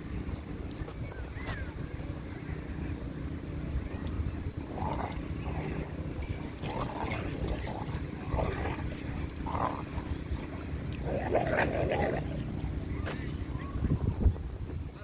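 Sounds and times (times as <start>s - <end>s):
dogs growling: 4.4s - 13.7s.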